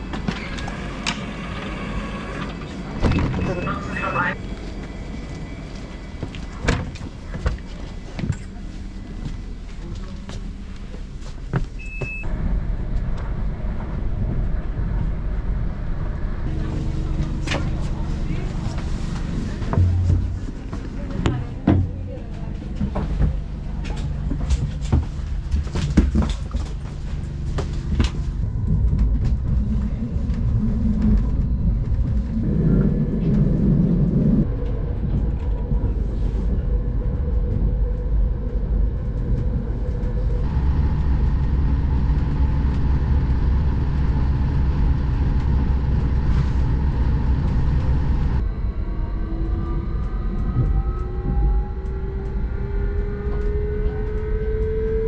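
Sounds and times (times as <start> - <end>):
train rumbling: 0.0 - 55.0
train whine rising in pitch: 29.8 - 55.0.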